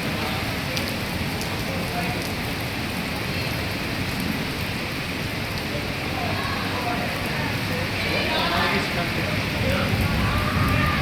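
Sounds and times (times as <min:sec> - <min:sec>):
sharp raindrop ticks: 0:00.0 - 0:05.8
rain hissing: 0:00.0 - 0:11.0.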